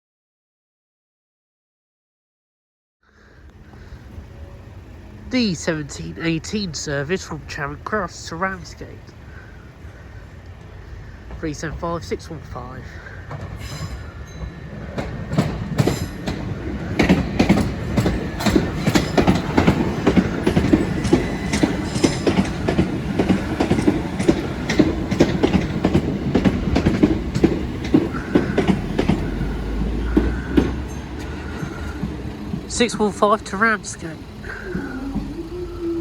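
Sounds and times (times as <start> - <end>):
train wheels clattering over rails: 12.9 - 36.0.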